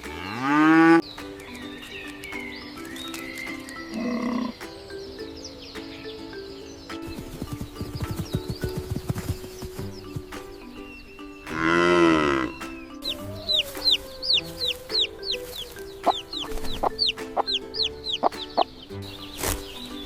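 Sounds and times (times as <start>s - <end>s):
farm animal call: 0.0s - 1.0s, 3.7s - 4.6s, 11.5s - 18.4s
gentle background music: 0.0s - 20.0s.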